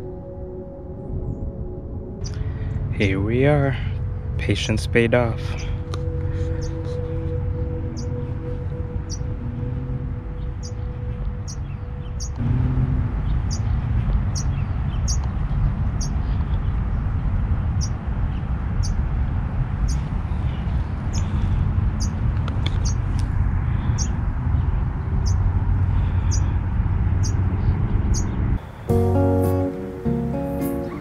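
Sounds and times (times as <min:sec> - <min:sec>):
wind rumbling on microphone: 0:00.9 - 0:28.9
small bird chirping: 0:06.6 - 0:06.9, 0:11.4 - 0:12.4, 0:13.4 - 0:13.7, 0:14.3 - 0:15.3, 0:16.0 - 0:16.2, 0:18.8 - 0:19.0, 0:22.8 - 0:23.0, 0:25.2 - 0:25.5, 0:27.2 - 0:27.4.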